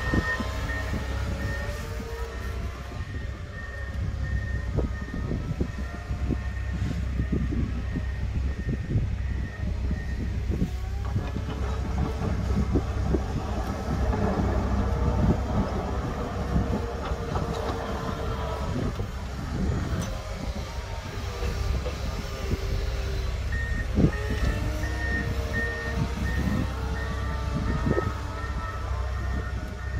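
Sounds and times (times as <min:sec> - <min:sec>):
backup alarm beeping: 0:00.0 - 0:05.9
tractor engine running: 0:00.0 - 0:29.9.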